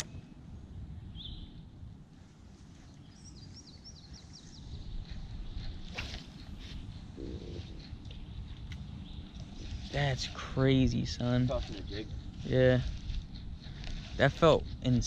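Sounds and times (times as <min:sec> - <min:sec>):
songbird chirping: 0:00.0 - 0:11.4
wind buffeting microphone: 0:00.0 - 0:15.0.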